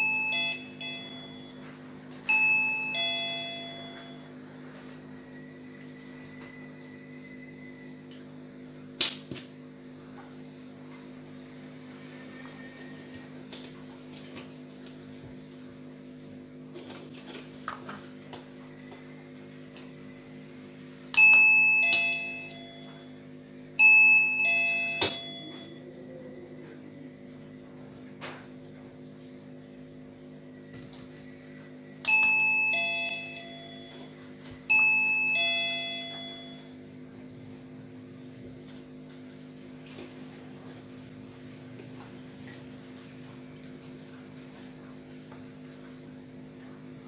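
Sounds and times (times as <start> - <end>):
doorbell electronic chime: 0.0 - 4.4, 21.1 - 23.2, 23.8 - 25.9, 32.0 - 36.8.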